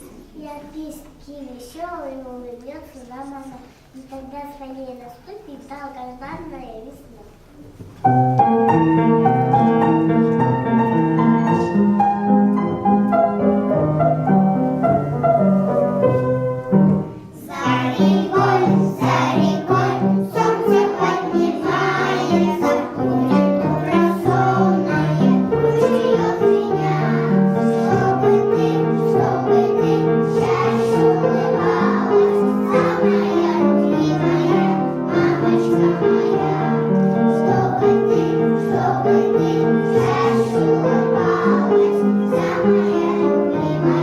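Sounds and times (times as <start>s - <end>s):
keyboard accompaniment: 7.4s - 44.0s
children singing: 17.3s - 44.0s.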